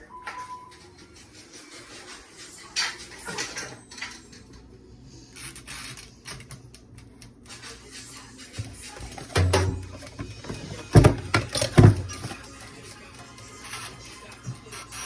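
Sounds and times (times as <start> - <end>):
dishes and utensils clinking: 2.5 - 4.8, 8.5 - 12.7.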